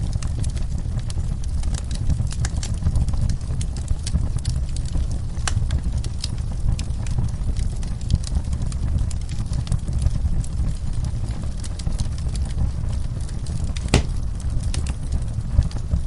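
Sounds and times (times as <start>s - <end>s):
wood fire burning: 0.0s - 16.0s
loud pop of fire: 13.8s - 14.9s.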